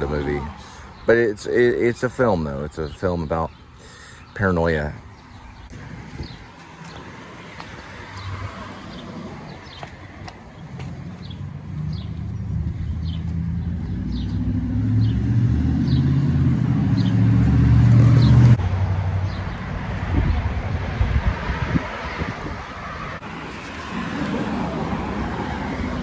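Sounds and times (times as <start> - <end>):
passing vehicle engine hum: 5.6 - 26.0.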